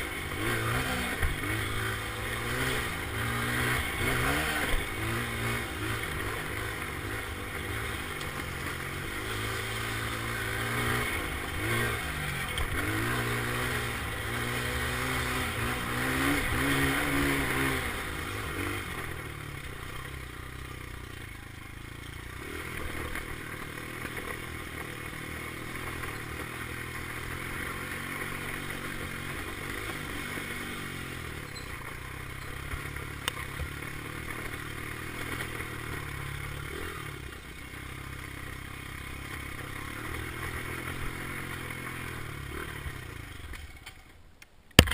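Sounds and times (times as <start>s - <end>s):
dirt bike engine revving: 0.0s - 43.6s
sharp click: 44.4s - 44.9s.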